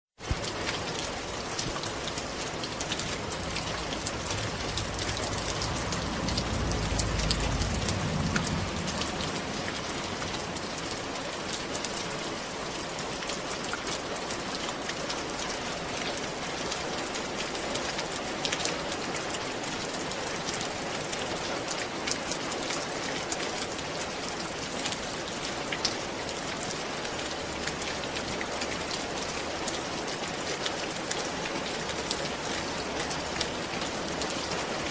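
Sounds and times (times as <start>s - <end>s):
rain on a roof: 0.1s - 34.9s
low rumble: 2.3s - 11.2s.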